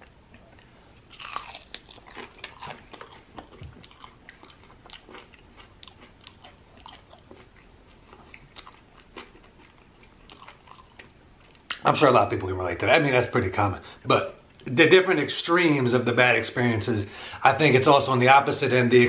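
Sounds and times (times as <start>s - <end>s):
chewing crunchy chicken wing: 0.4s - 11.8s.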